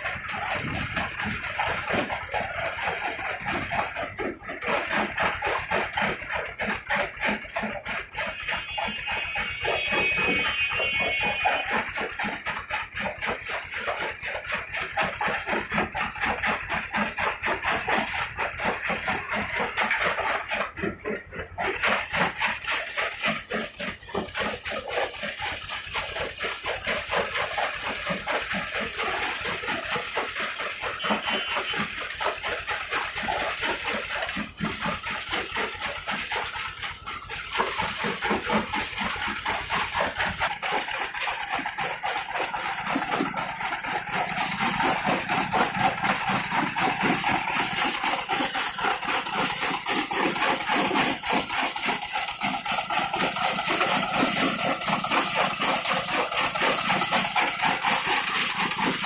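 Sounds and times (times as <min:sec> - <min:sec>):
brick-breaking machine clatter: 0:00.0 - 0:59.0.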